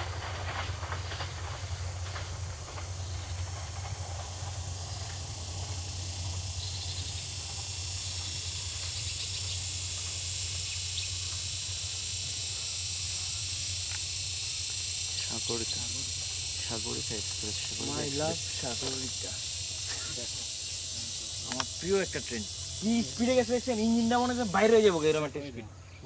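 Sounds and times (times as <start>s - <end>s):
train wheel clicks: 0.0s - 24.8s
train low hum and hiss: 0.0s - 26.0s.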